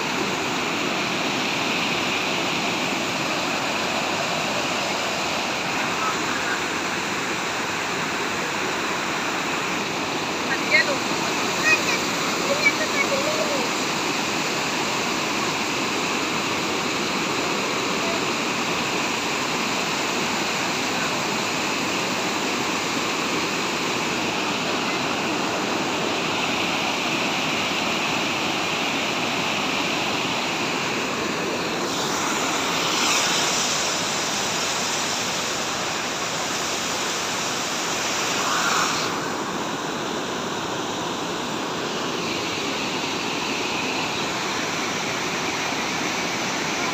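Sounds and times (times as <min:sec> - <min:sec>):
waterfall rushing: 0:00.0 - 0:46.9.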